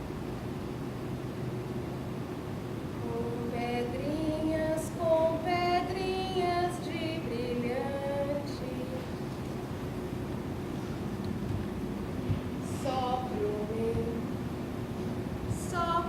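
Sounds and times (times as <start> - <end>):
steady low hum: 0.0 - 16.0
woman singing unaccompanied: 3.0 - 9.2, 12.6 - 14.5, 15.5 - 16.0.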